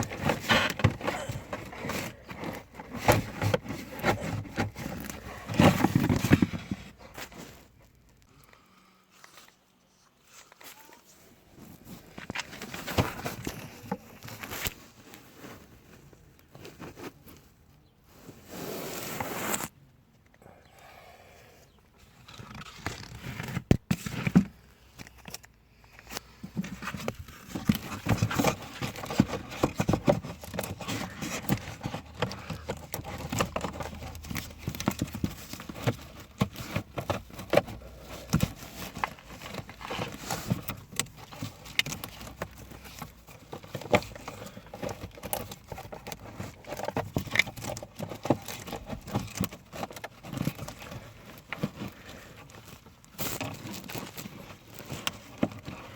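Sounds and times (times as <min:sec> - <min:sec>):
plastic parts clicking and knocking: 0:22.2 - 0:55.9.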